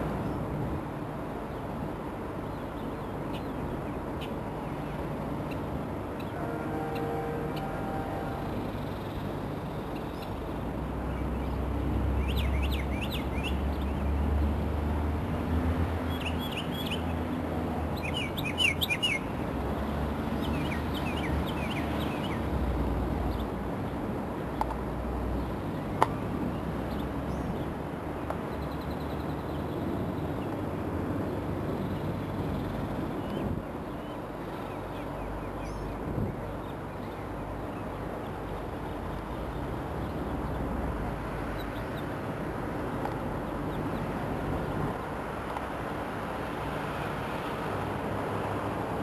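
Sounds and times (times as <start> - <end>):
small birds chirping: 11.1 - 14.1, 17.9 - 19.3, 31.8 - 40.6.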